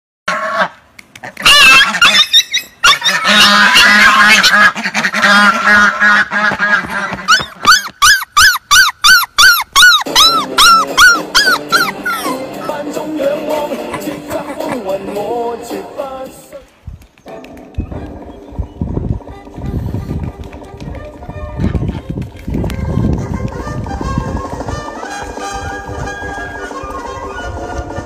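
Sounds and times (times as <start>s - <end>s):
animal calls: 0.3s - 12.9s
background music: 10.1s - 16.7s, 22.8s - 28.0s.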